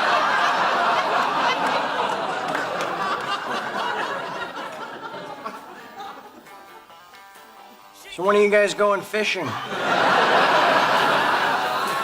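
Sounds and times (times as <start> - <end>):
studio audience laughing: 0.0 - 6.7, 9.4 - 12.0.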